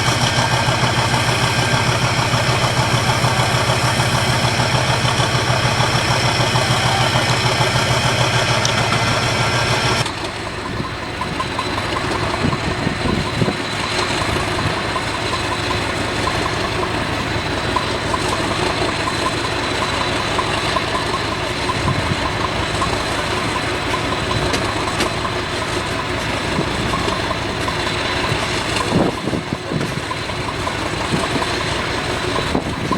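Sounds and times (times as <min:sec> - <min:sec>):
high-pitched whine: 0:00.0 - 0:16.0
engine knocking: 0:00.0 - 0:32.9
locomotive diesel engine rumbling: 0:00.0 - 0:32.9.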